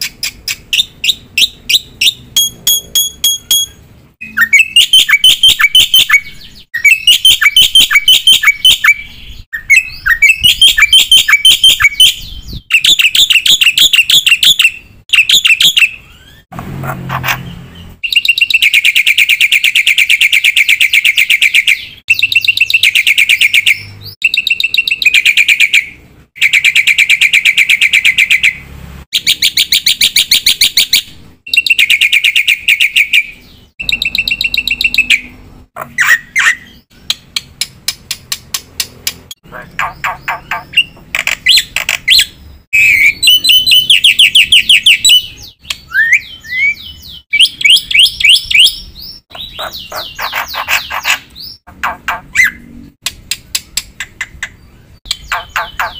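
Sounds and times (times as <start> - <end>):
bird ringing song notes: 0.1 - 16.4, 17.4 - 28.6, 29.2 - 37.2, 39.8 - 52.6, 54.4 - 55.9
bird harsh rasping call: 39.4 - 52.7, 55.2 - 55.9.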